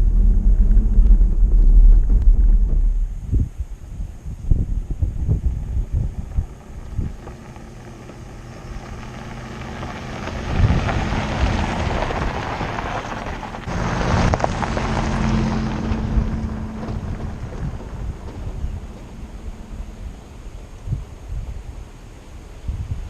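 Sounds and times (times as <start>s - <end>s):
vehicle engine hum: 0.0s - 23.0s
wind and road noise: 0.0s - 23.0s.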